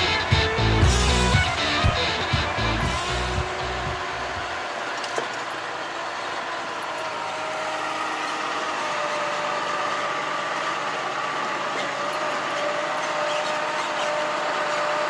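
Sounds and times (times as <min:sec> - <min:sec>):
tyre and road noise: 0:00.0 - 0:05.3
truck engine running: 0:00.0 - 0:05.6.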